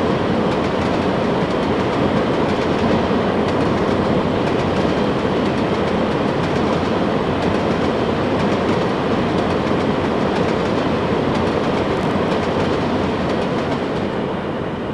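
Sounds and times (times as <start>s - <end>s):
train wheels rumbling on rails: 0.0s - 14.9s.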